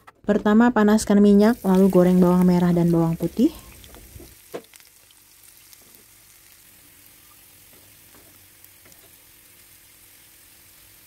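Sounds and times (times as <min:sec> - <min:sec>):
shallots and garlic frying in oil: 0:01.0 - 0:11.0.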